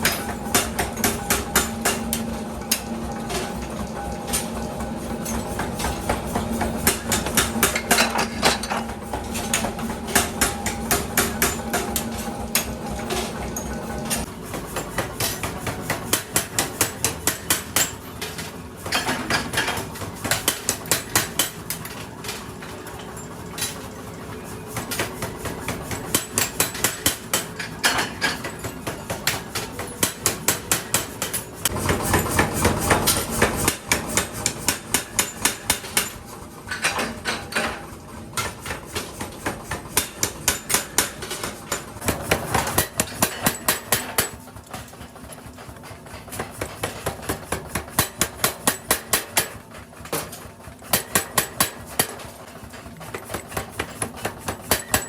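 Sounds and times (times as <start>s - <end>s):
hammer striking metal: 38.4s - 44.4s.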